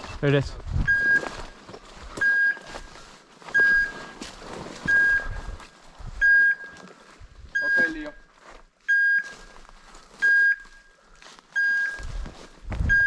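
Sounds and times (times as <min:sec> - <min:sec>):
rustling of brush: 0:00.0 - 0:07.6, 0:08.3 - 0:12.9
beeper collar high beeps: 0:00.8 - 0:01.6, 0:02.2 - 0:02.8, 0:03.5 - 0:04.2, 0:04.8 - 0:05.6, 0:06.2 - 0:06.9, 0:07.5 - 0:08.3, 0:08.9 - 0:09.5, 0:10.2 - 0:11.0, 0:11.6 - 0:12.2.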